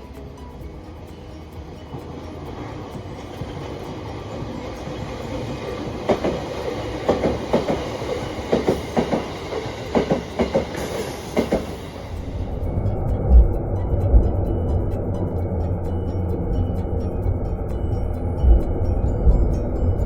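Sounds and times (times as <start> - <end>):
train wheels clacking on rail joints: 0.0 - 15.0
train rumble: 0.0 - 20.0.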